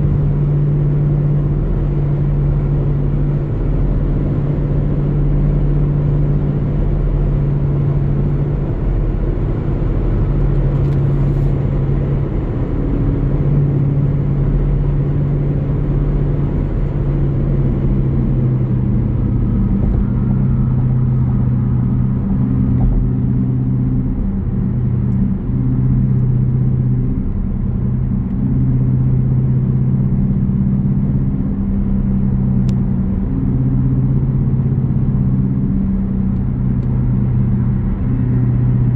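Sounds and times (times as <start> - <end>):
car exhaust rumbling: 0.0 - 38.9.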